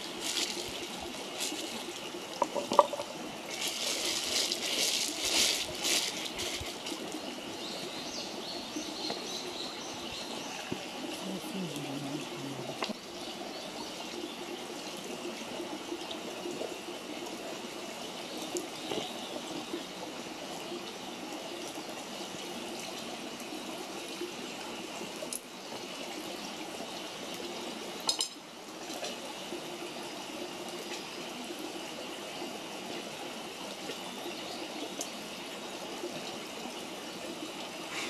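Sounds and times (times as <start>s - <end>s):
campfire hissing and crackling: 0.0s - 7.7s, 37.6s - 38.0s.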